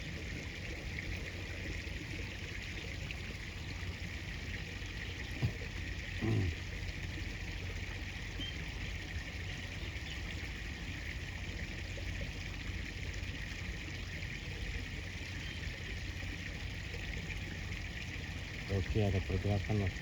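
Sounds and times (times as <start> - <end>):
river water flowing: 0.0 - 20.0
low thump: 5.4 - 5.7.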